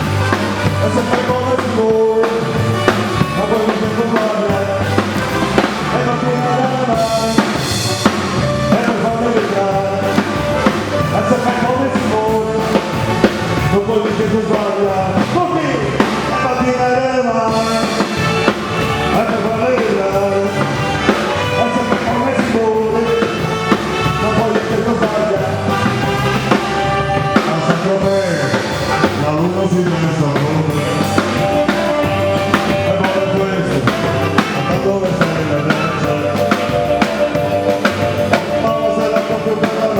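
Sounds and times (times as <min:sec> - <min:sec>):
person singing: 0:00.0 - 0:39.9
upbeat song with drums: 0:00.0 - 0:39.9.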